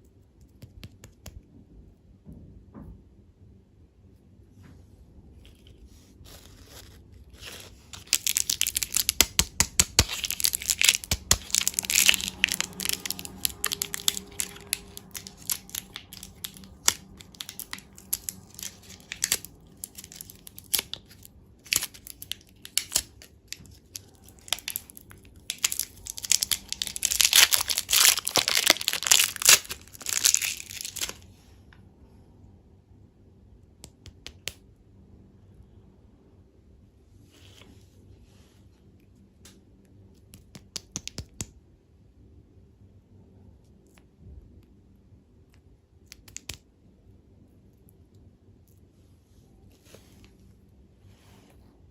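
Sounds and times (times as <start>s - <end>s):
candy crackling and crunching: 5.4s - 31.3s.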